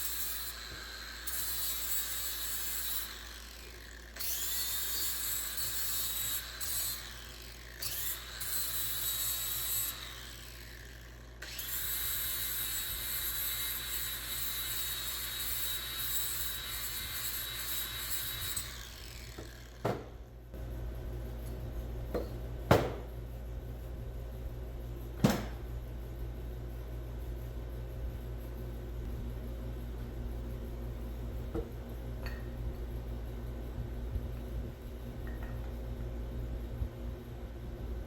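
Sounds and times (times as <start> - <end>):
power tool whining: 0.0 - 20.0.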